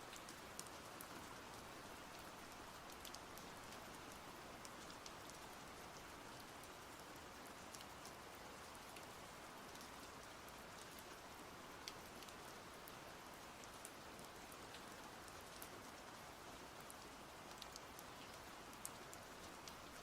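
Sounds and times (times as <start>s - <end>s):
faint rain hiss: 0.0s - 20.0s
raindrops ticking: 0.1s - 11.2s, 11.8s - 13.0s, 16.8s - 20.0s.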